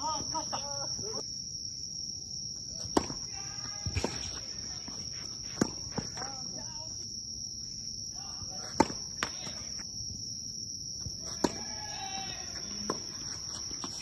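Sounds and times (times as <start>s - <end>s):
tennis balls struck by rackets: 2.6s - 7.0s, 8.4s - 9.9s, 11.0s - 14.0s
balls bouncing on court: 2.7s - 7.0s, 8.5s - 9.8s, 11.0s - 14.0s.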